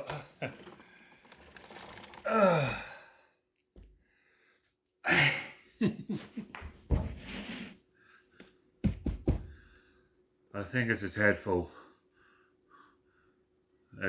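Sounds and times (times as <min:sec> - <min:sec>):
person sighing: 0:02.2 - 0:03.4.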